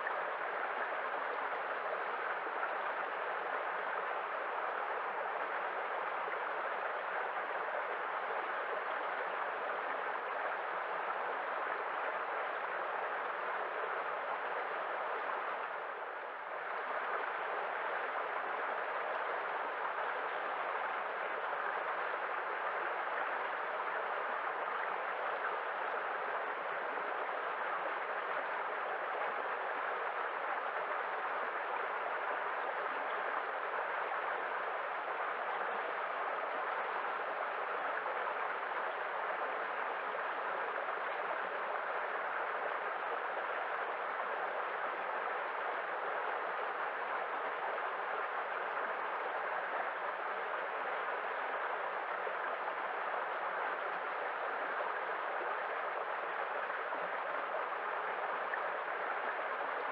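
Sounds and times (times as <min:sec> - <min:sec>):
water rushing: 0:16.4 - 0:59.9.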